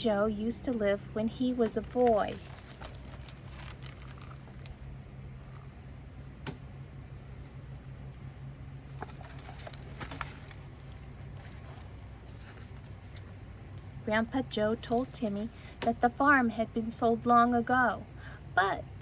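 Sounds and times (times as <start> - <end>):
low steady hum: 0.0 - 19.0
handling noises: 1.4 - 4.8, 8.8 - 13.4.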